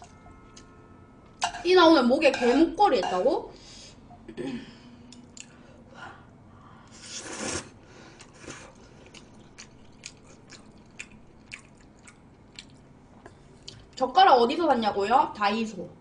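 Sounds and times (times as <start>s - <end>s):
person slurping noodles: 6.9s - 8.8s
wet chewing smacks: 8.2s - 13.9s.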